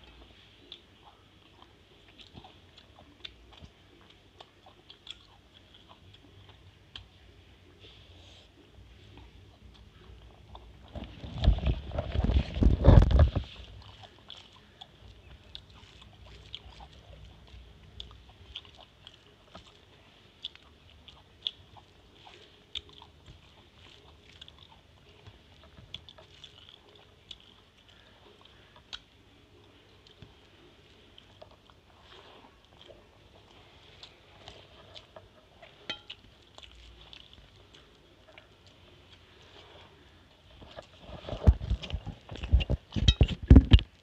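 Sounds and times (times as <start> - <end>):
person chewing food: 0.0 - 44.0
fingers mixing rice on steel plate: 33.4 - 43.7.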